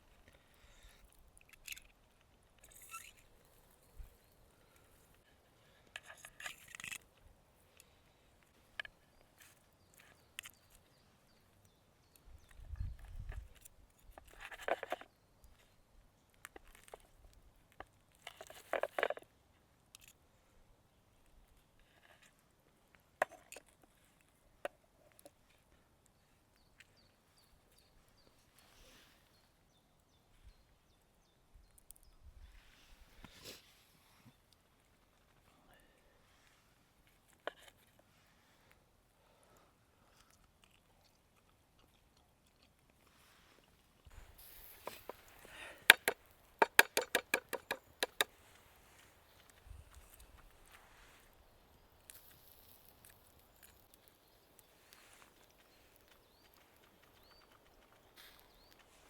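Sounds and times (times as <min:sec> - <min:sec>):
sharp clicks and taps: 0:45.8 - 0:48.3
sharp knocks: 0:45.9 - 0:48.3.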